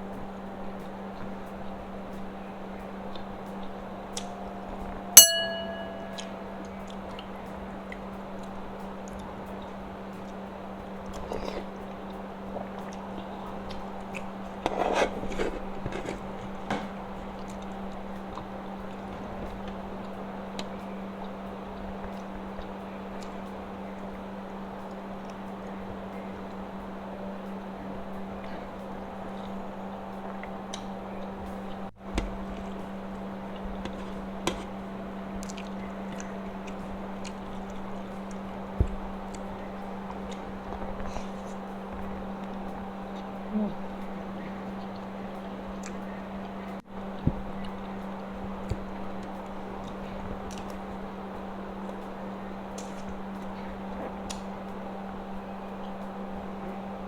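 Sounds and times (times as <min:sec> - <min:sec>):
low hum: 0:00.0 - 0:57.0
person chewing food: 0:11.0 - 0:18.4, 0:33.5 - 0:42.6.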